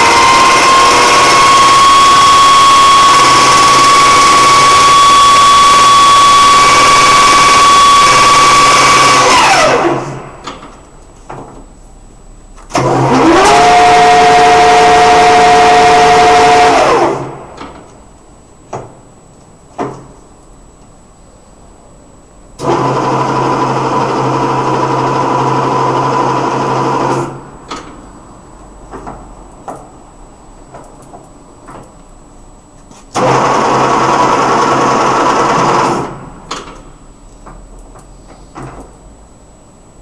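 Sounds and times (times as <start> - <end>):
lathe spindle whining: 0.0 - 10.2, 12.8 - 17.3.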